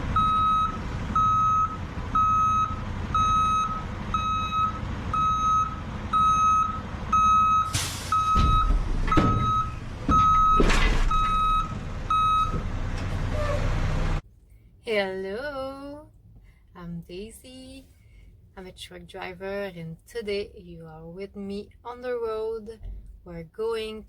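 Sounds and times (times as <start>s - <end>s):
truck reversing alarm beeping: 0.0s - 13.4s
truck engine rumble: 0.0s - 14.4s.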